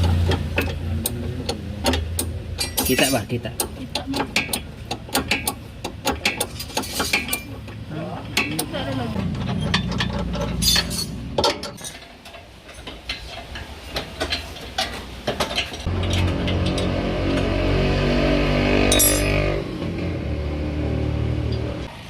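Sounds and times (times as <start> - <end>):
metal tools clinking: 1.9 - 16.9, 18.9 - 19.5
low hum: 8.7 - 11.8.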